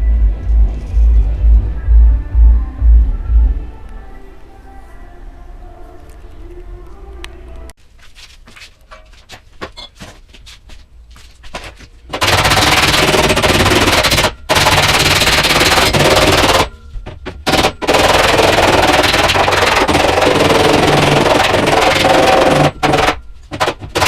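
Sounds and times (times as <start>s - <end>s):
loud workshop tool running: 17.5s - 23.2s.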